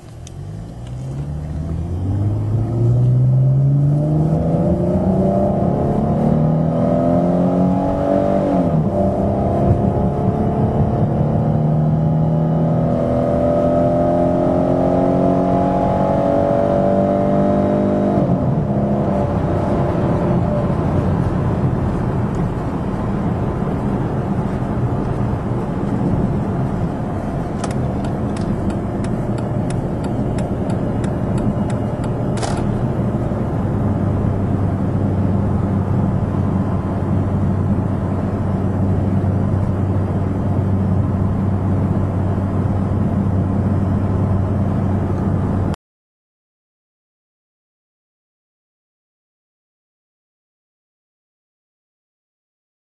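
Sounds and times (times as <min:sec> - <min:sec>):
car engine accelerating: 0:00.0 - 0:45.8
tyre and road noise: 0:00.0 - 0:45.8.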